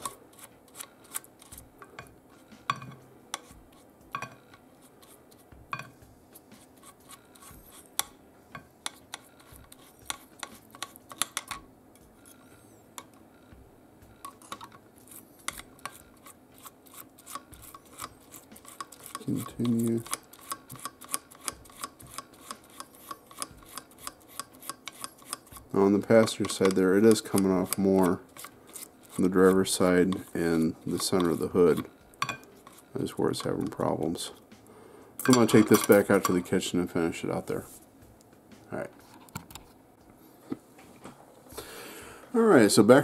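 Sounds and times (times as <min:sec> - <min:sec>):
toothbrush scrubbing metal: 0:00.0 - 0:01.7, 0:03.3 - 0:05.6, 0:06.4 - 0:08.1, 0:08.8 - 0:12.6, 0:14.3 - 0:34.2
metal tapping against glass: 0:02.7 - 0:03.0, 0:04.1 - 0:04.4, 0:32.2 - 0:32.5.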